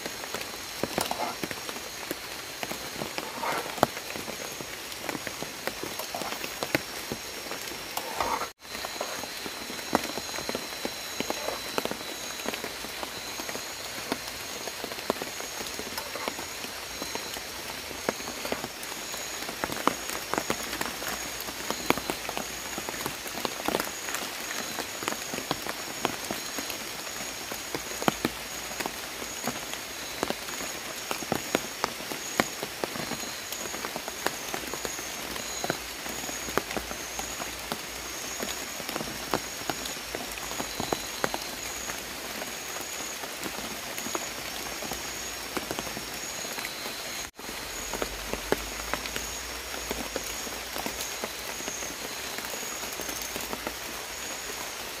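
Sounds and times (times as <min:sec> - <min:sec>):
forest animals high-pitched calling: 0:00.7 - 0:12.4.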